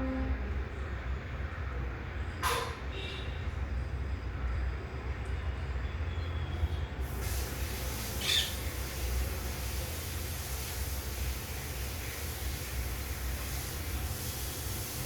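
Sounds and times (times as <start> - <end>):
short bird calls: 8.1 - 8.7.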